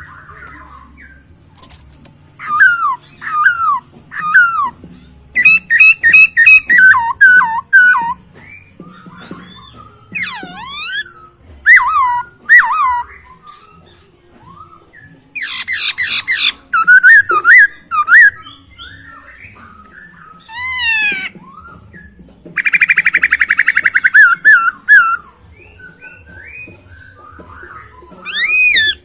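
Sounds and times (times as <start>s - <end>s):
bird singing whistled phrases: 2.4s - 29.0s
bird rattling trill: 5.4s - 8.2s, 28.2s - 29.0s.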